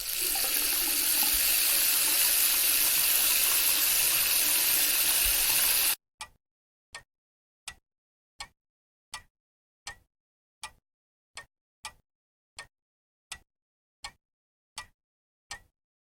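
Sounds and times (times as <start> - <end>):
water running: 0.0 - 6.0.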